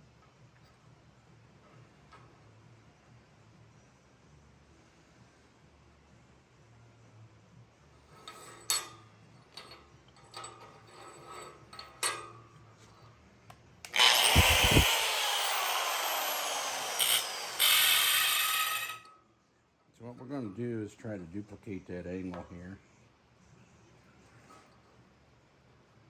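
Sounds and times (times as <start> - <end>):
power tool running: 13.9 - 19.1.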